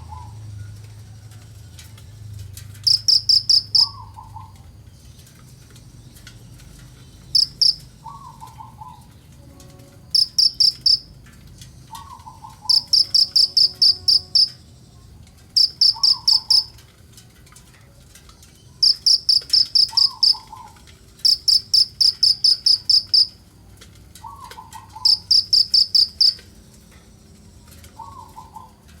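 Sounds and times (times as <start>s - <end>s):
lower bird call: 11.9s - 14.6s, 15.6s - 16.8s, 18.8s - 23.3s, 24.2s - 26.4s.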